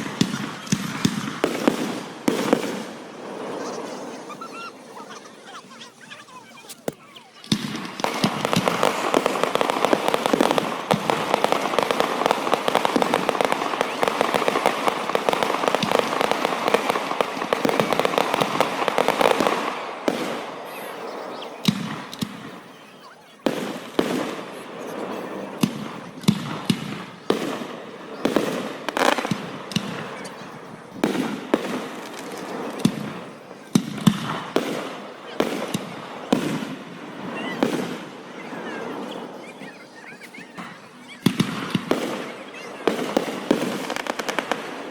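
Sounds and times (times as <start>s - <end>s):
single firework bangs echoing: 0.0s - 4.9s, 6.9s - 44.9s
fireworks crackling barrage: 0.0s - 44.9s.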